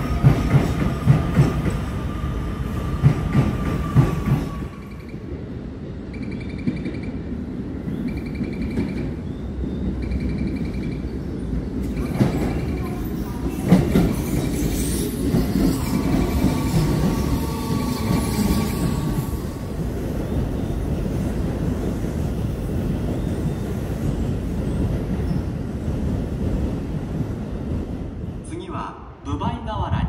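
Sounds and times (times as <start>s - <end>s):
train low hum: 0.0s - 30.0s
train rumbling: 0.0s - 30.0s.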